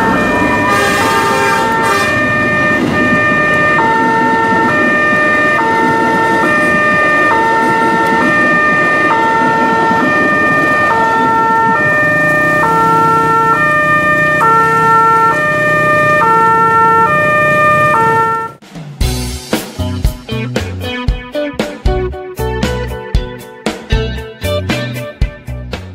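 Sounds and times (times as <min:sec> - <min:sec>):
two-tone crossing alarm: 0:00.0 - 0:18.6
train rumbling past: 0:00.0 - 0:19.0.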